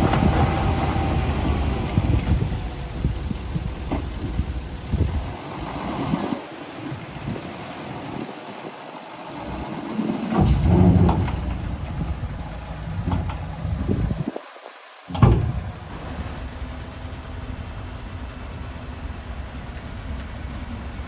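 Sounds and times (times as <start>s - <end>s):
heavy diesel machinery running: 0.0s - 14.2s, 15.1s - 21.0s
knocks and clanks: 10.3s - 14.2s, 15.1s - 15.9s.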